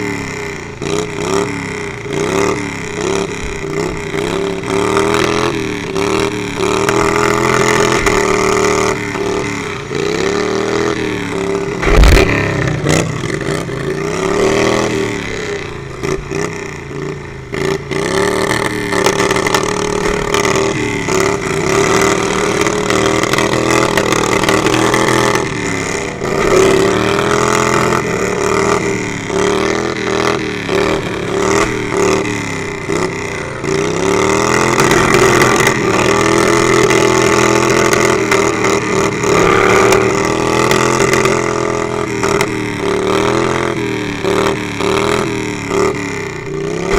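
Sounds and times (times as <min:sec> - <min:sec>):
lawnmower engines revving: 0:00.0 - 0:46.9
loud bang: 0:39.0 - 0:41.8.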